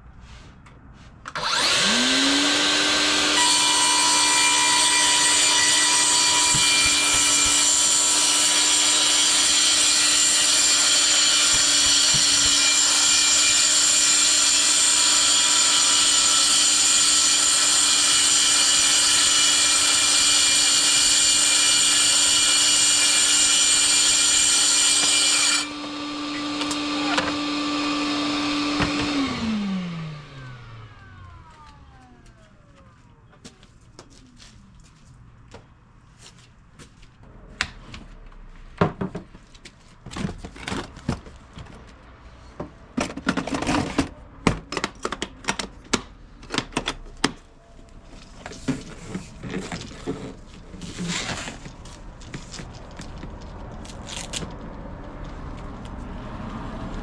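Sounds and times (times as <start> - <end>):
track saw cutting wood: 1.3 - 32.4, 48.5 - 52.8
dust extractor running: 1.4 - 32.4.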